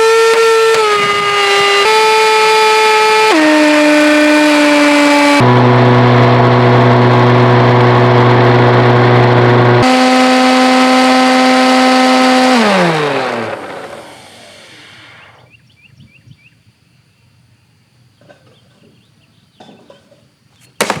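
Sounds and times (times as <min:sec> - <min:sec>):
vacuum cleaner whine: 0:00.0 - 0:15.5.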